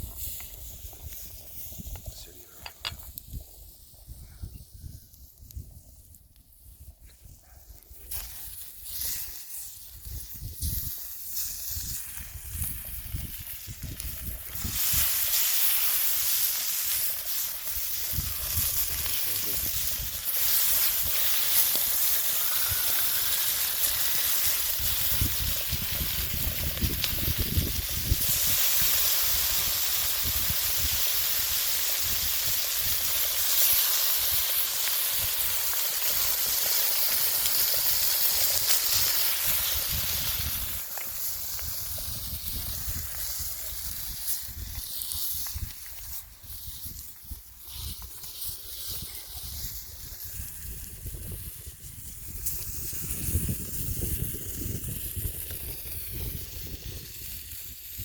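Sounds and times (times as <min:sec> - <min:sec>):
wind buffeting microphone: 0:00.0 - 0:07.4, 0:09.9 - 0:15.2, 0:24.7 - 0:29.0, 0:39.5 - 0:48.0, 0:48.9 - 0:58.0.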